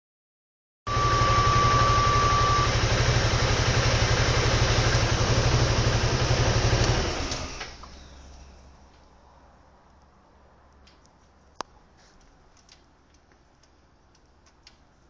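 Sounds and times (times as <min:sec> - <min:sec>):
thin high whine: 0:00.9 - 0:03.0
scooter engine running: 0:00.9 - 0:08.6.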